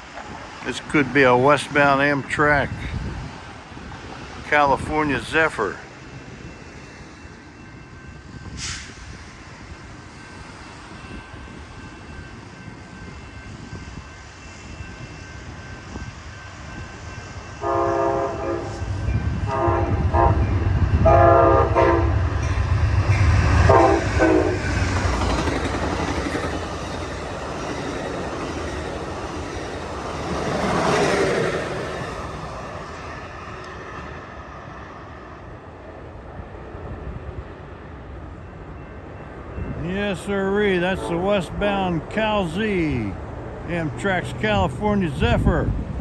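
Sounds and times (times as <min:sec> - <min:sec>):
passenger train passing: 0:00.0 - 0:46.0
locomotive rumble: 0:15.0 - 0:46.0
train horn: 0:17.6 - 0:22.4, 0:23.6 - 0:24.8, 0:40.7 - 0:41.6.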